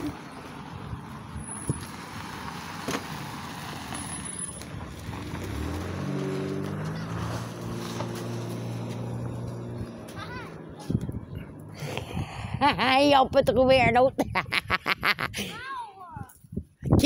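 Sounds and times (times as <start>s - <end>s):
outdoor background noise: 0.0s - 17.0s
vehicle engine running: 4.2s - 12.2s.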